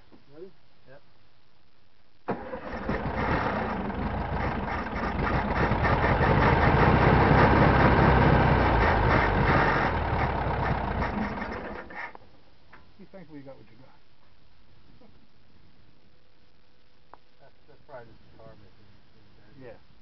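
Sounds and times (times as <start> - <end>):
car engine starting: 2.3 - 12.1.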